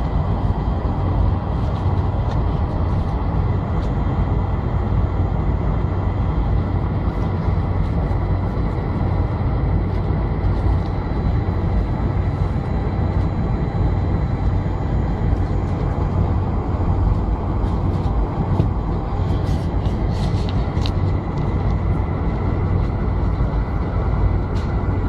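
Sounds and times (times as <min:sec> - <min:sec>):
jet engine drone in cabin: 0:00.0 - 0:25.0
thin constant whine: 0:00.0 - 0:25.0.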